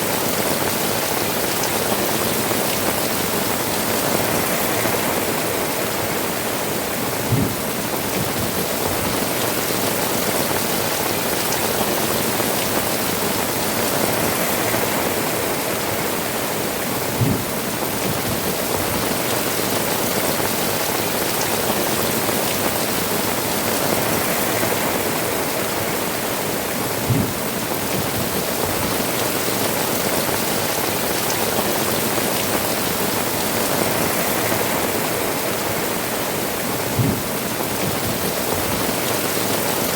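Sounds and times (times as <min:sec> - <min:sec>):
heavy rain on rooftops: 0:00.0 - 0:39.9
short low thud: 0:07.3 - 0:07.6, 0:27.1 - 0:27.4, 0:37.0 - 0:37.2.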